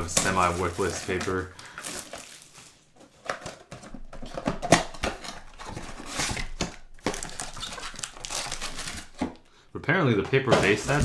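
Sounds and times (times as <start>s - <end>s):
trading cards being handled: 0.0s - 4.0s.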